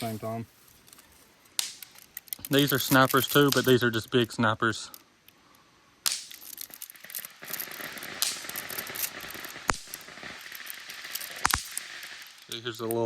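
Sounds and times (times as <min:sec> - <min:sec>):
sharp clicks: 0:01.5 - 0:03.8, 0:06.1 - 0:13.0.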